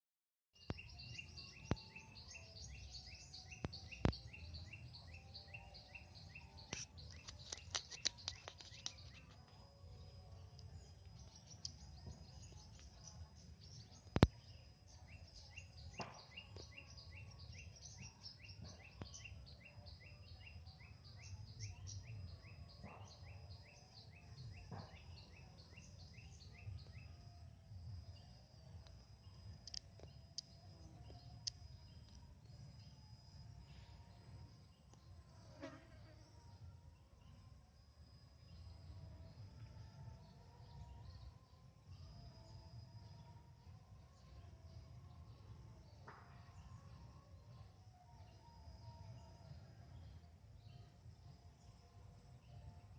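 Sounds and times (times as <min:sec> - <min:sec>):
small birds chirping: 0:00.6 - 0:27.2.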